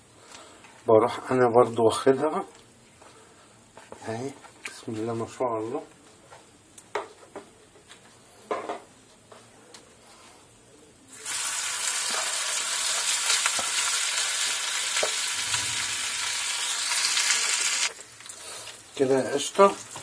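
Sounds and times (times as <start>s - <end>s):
chicken sizzling in hot oil: 11.1s - 20.0s.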